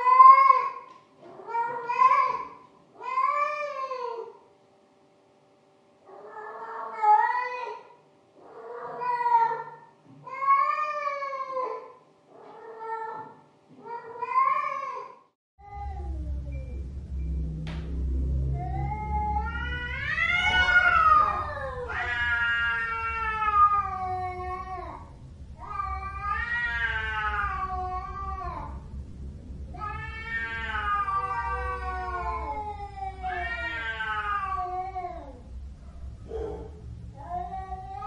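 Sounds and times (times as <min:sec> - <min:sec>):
cat howling: 0:00.0 - 0:04.3, 0:06.1 - 0:16.8, 0:18.3 - 0:29.0, 0:29.6 - 0:35.6, 0:36.2 - 0:38.0.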